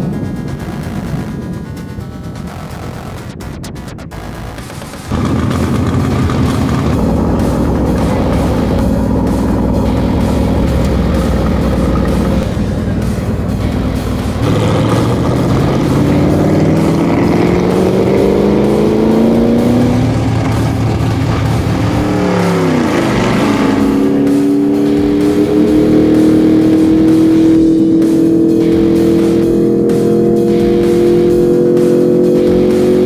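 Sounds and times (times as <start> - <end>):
music: 0.0 - 33.0
race car engine accelerating: 0.0 - 33.0.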